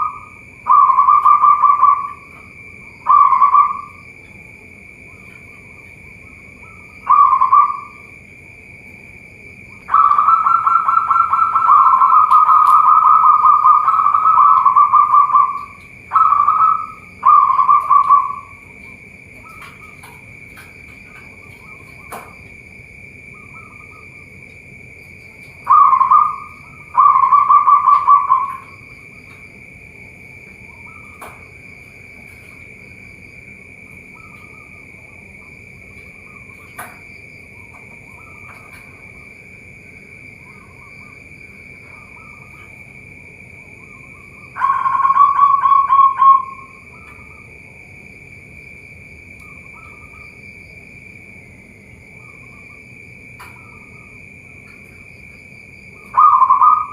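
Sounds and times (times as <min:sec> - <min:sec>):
dove cooing in trilled phrases: 0:00.0 - 0:04.2, 0:05.0 - 0:08.2, 0:09.7 - 0:22.3, 0:25.3 - 0:29.2, 0:44.1 - 0:47.4, 0:55.9 - 0:56.9.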